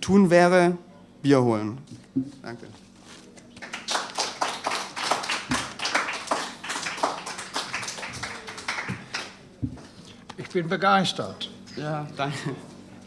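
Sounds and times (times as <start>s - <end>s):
audience applauding: 3.6s - 9.4s.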